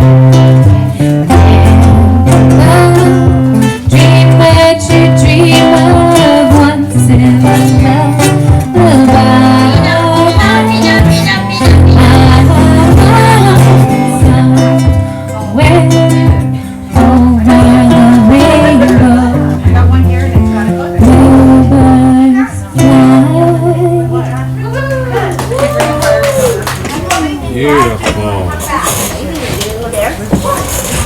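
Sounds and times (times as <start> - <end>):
strummed acoustic guitar: 0.0 - 25.5
bass line: 0.0 - 28.6
person singing: 0.7 - 19.8, 20.9 - 24.6.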